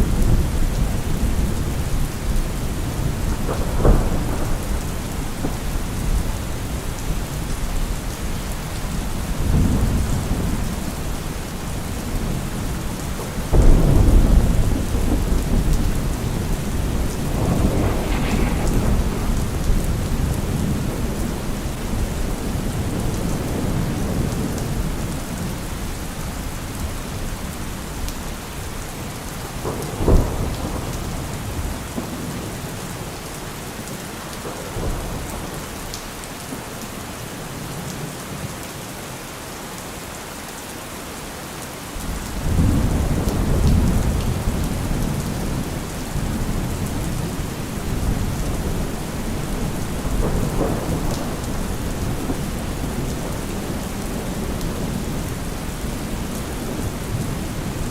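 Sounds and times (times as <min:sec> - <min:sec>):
thunder rumbling: 0:00.0 - 0:25.6, 0:42.0 - 0:57.9
steady rain: 0:00.0 - 0:57.9
sharp thunder clap: 0:02.9 - 0:06.7, 0:13.5 - 0:24.4.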